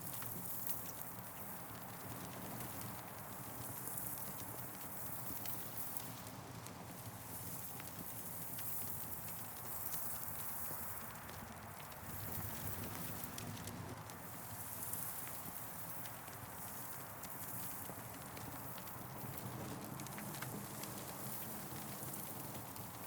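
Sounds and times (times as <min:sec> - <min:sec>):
campfire crackling and popping: 0:07.0 - 0:23.0.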